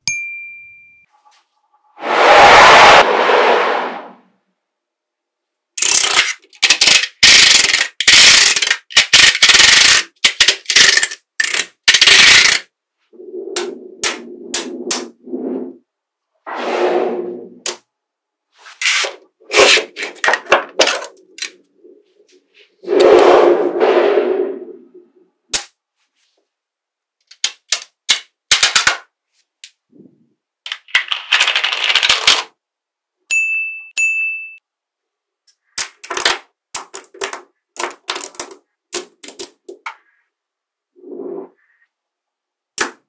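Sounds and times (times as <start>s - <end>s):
magnetic balls clicking together: 5.8s - 12.7s, 35.8s - 40.0s.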